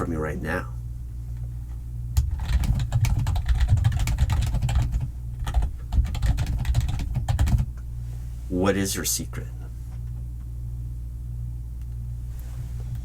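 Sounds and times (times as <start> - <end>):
steady low hum: 0.0 - 13.0
fast keyboard typing: 2.2 - 7.7.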